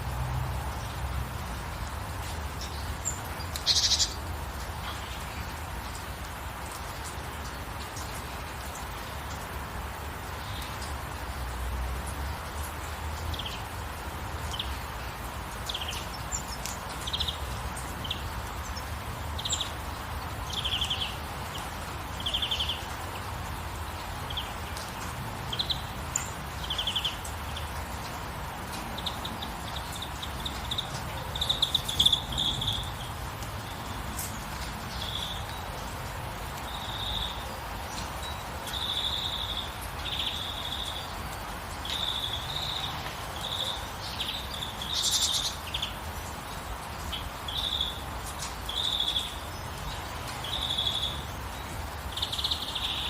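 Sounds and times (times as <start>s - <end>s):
rain hiss: 0.0s - 53.0s
birds chirping and trilling: 2.2s - 6.0s, 25.4s - 35.6s, 36.6s - 53.0s.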